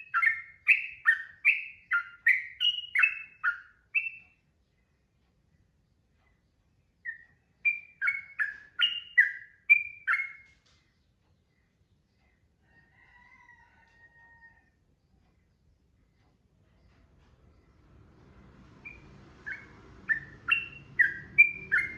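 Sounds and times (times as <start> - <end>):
bulbul singing: 0.0 - 4.4, 6.3 - 11.8, 18.8 - 21.9.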